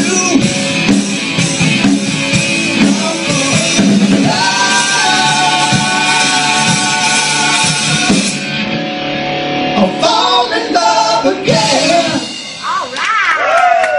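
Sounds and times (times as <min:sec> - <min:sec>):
backing music: 0:00.0 - 0:13.6
person singing: 0:02.6 - 0:08.4, 0:09.8 - 0:13.0.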